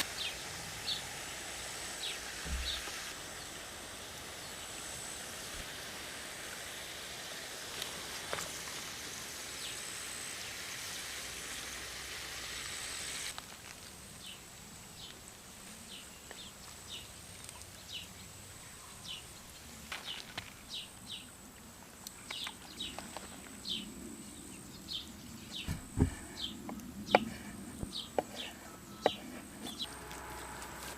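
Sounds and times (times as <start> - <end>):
high falling bird chirps: 2.0 - 3.5.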